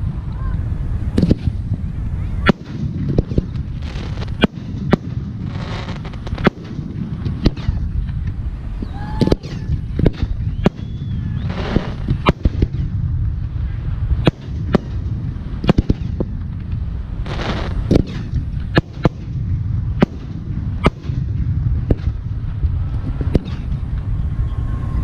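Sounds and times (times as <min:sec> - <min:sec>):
low rumble: 0:00.0 - 0:25.0
firework shells bursting: 0:02.4 - 0:08.4, 0:09.2 - 0:13.0, 0:14.2 - 0:22.3.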